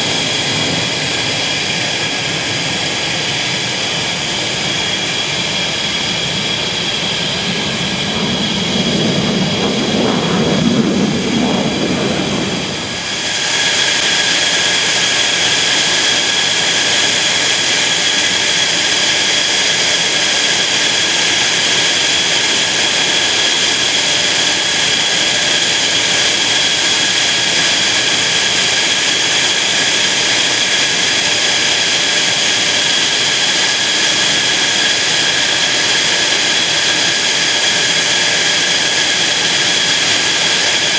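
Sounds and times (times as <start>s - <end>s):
deep jet rumble: 0.0s - 14.8s
jet engine whine: 0.0s - 40.9s.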